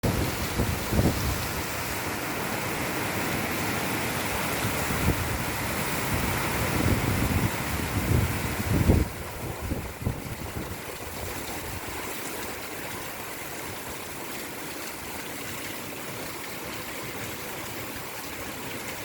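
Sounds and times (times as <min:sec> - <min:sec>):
wind gusts rumbling: 0:00.0 - 0:02.8, 0:03.4 - 0:12.1
heavy rain: 0:00.0 - 0:19.0.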